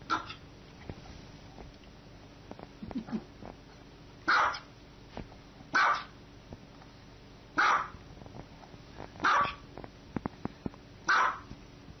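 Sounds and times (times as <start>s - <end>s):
dog barking: 0.1s - 0.4s, 4.3s - 4.7s, 5.7s - 6.2s, 7.6s - 8.0s, 9.2s - 9.6s, 11.1s - 11.5s.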